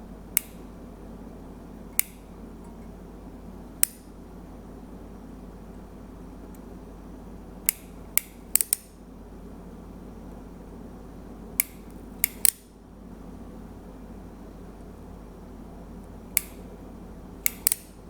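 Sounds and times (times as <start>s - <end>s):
soldering iron trigger clicks: 0.4s - 0.7s, 2.0s - 2.3s, 3.8s - 4.1s, 7.7s - 9.0s, 11.6s - 12.6s, 16.0s - 16.7s, 17.4s - 18.0s.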